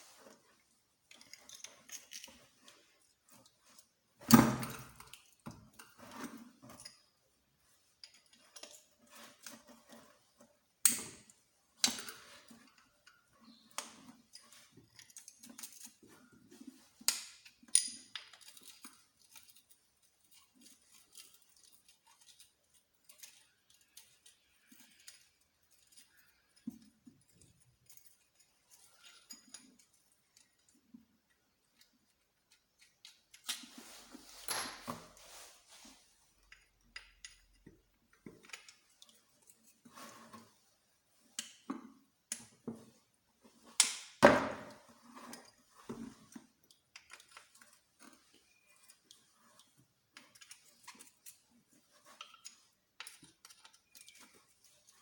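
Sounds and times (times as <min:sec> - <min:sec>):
metal tools clinking: 0:32.8 - 0:35.8.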